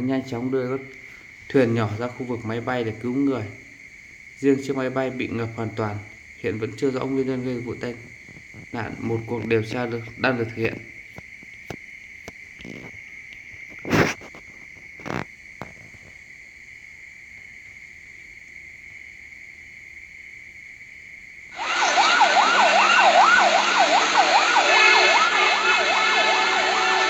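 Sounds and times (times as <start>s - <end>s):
high-pitched shrill hum: 21.5s - 27.0s
siren yelping: 21.6s - 27.0s.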